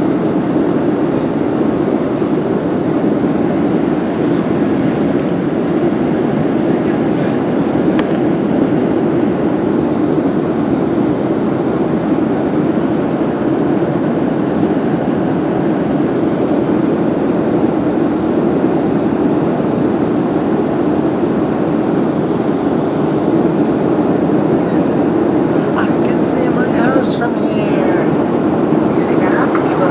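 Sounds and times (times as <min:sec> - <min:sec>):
airplane cabin engine drone: 0:00.0 - 0:29.9.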